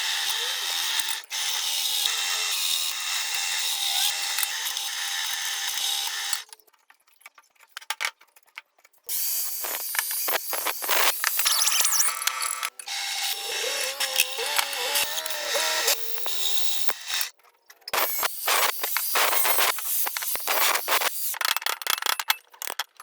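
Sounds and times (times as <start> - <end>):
power tool running high-pitched: 0.0 - 6.5, 9.1 - 17.3, 18.0 - 21.4
scattered clicks: 13.6 - 23.0.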